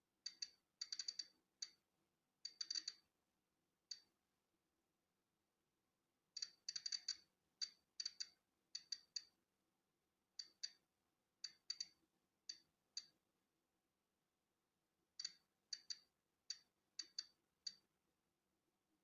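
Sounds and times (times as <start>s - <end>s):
geiger counter clicking: 0.3s - 1.8s, 2.5s - 3.0s, 6.4s - 9.3s, 11.4s - 13.2s, 15.2s - 17.8s.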